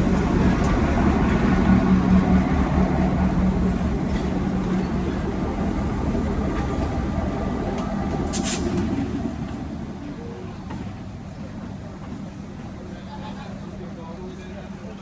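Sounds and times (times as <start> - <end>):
locomotive engine drone: 0.0 - 15.0.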